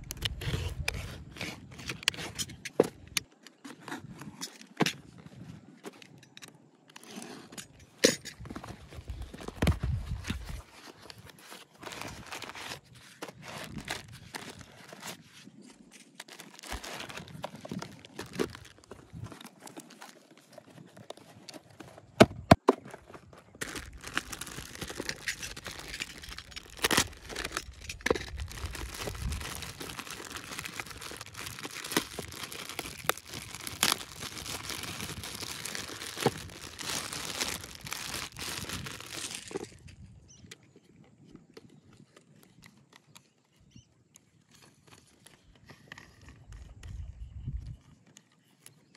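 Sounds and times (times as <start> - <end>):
packaging tearing and crinkling: 8.4 - 15.4, 16.1 - 21.6, 23.6 - 39.9.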